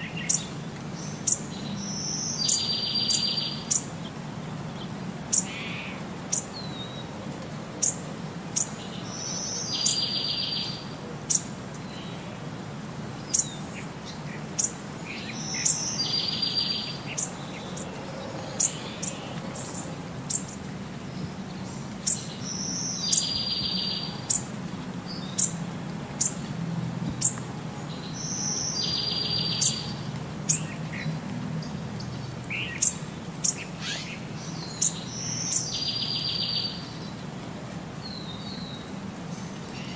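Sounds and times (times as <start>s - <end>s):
bird chirps and trill: 28.1s - 30.8s, 32.5s - 36.9s.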